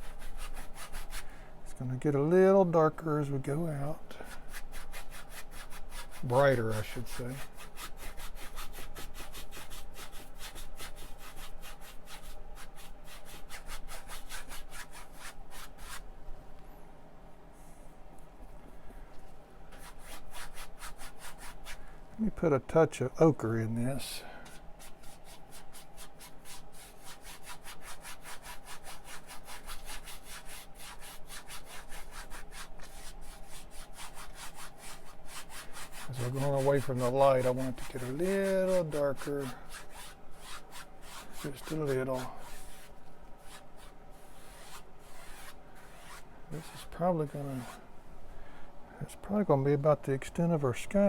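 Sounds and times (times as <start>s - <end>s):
paint brush scrubbing on canvas: 0.0s - 1.3s, 3.7s - 16.0s, 19.7s - 21.8s, 24.5s - 47.8s.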